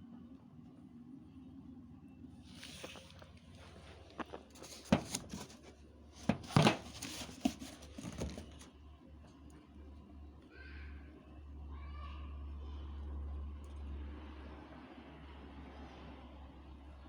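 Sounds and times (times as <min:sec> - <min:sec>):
low background hum: 0:00.0 - 0:17.0
packaging clacks and rustles: 0:02.5 - 0:08.7.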